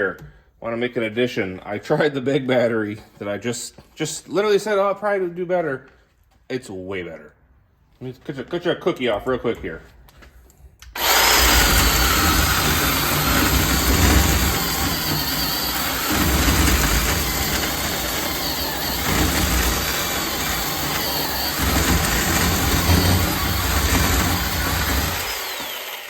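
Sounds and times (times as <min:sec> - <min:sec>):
cordless chainsaw cutting log: 0:10.9 - 0:26.0.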